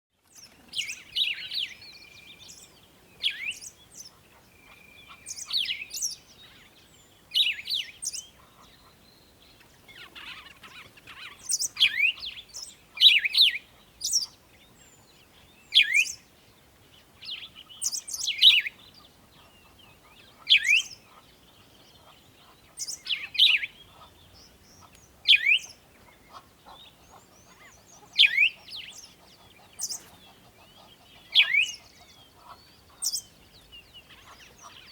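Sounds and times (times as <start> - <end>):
bird chirping: 0.2 - 34.9.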